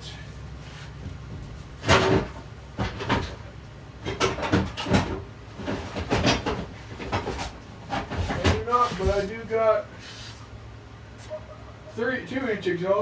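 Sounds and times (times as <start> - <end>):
low steady hum: 0.0 - 13.0
hard items clanking and rattling: 1.1 - 9.4.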